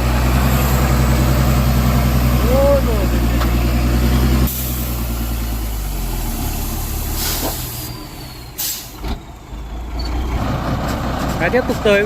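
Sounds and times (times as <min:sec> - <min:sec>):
diesel truck engine running: 0:00.0 - 0:12.0
air brake hiss: 0:07.1 - 0:09.0.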